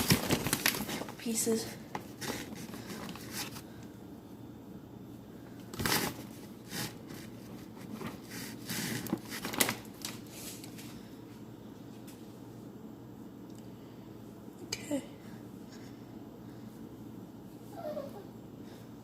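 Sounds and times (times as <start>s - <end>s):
rustling and scraping handling: 0.0s - 3.8s, 5.7s - 11.0s.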